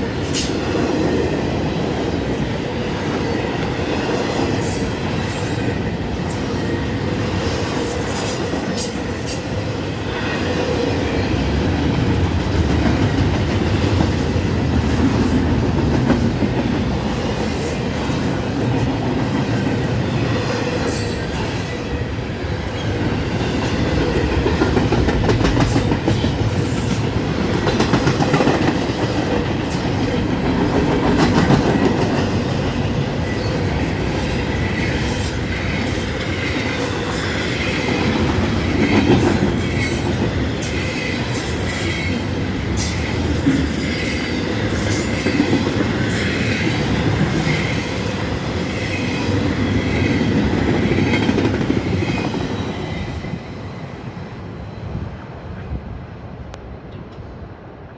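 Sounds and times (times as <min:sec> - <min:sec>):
freight train rolling past: 0:00.0 - 0:57.9.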